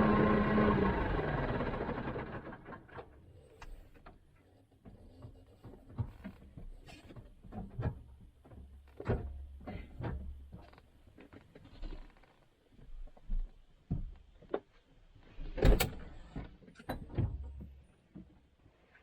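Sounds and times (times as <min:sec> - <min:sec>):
tractor engine: 0:00.0 - 0:03.1.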